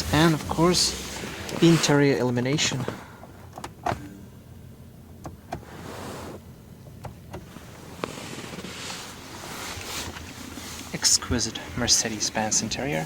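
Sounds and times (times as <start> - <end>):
car switches clicking: 5.0 - 5.6, 6.8 - 7.5.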